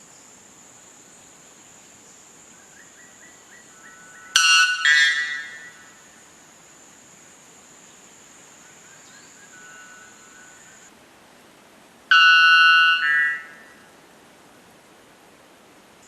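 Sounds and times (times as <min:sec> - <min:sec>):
bird buzzy call: 0:12.1 - 0:13.8.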